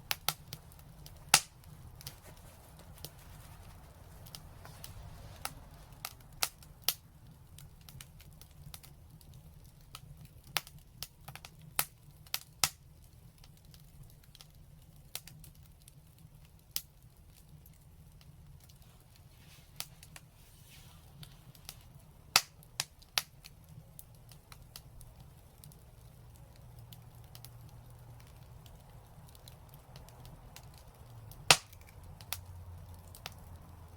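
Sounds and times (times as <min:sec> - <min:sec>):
wood fire crackling: 0:00.0 - 0:33.9
sharp pops of burning wood: 0:00.1 - 0:04.7, 0:05.4 - 0:14.5, 0:21.1 - 0:33.9.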